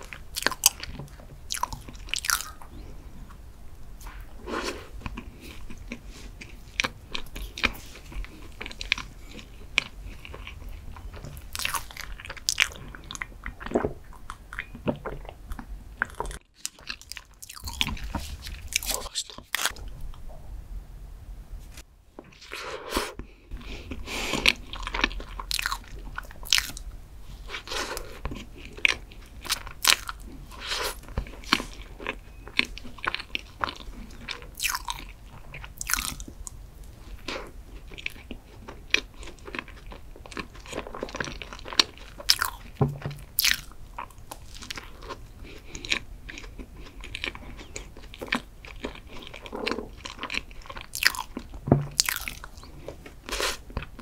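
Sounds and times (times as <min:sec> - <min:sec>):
chewing and biting muffin: 0:00.0 - 0:03.4, 0:04.8 - 0:19.9, 0:23.3 - 0:54.0.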